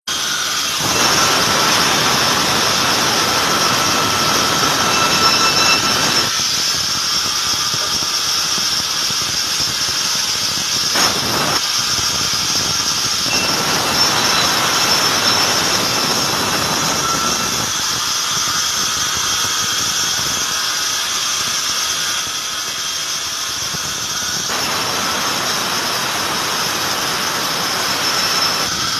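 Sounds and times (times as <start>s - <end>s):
sawmill blade squealing: 0.1s - 9.9s, 10.6s - 28.9s
blade cutting wood: 0.1s - 28.9s.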